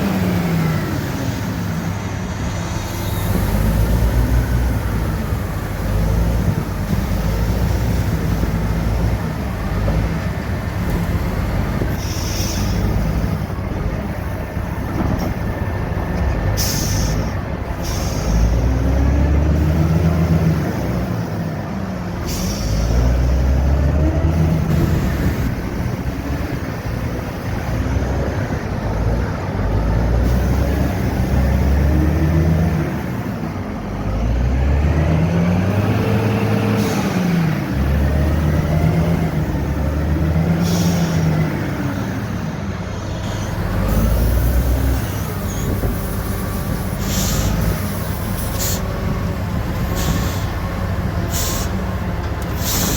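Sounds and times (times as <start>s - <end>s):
truck diesel engine shifting gears: 0.0s - 52.9s
air hisses: 11.9s - 13.0s, 45.5s - 48.9s, 51.3s - 51.8s, 52.5s - 52.9s.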